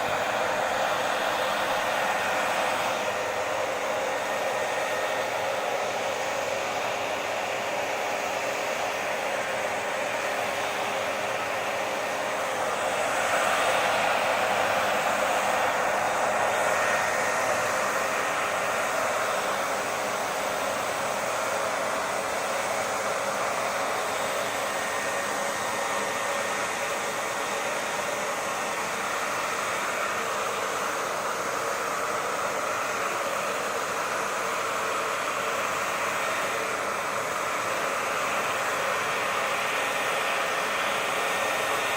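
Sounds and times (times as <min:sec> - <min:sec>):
hair dryer blowing: 0:00.0 - 0:41.9.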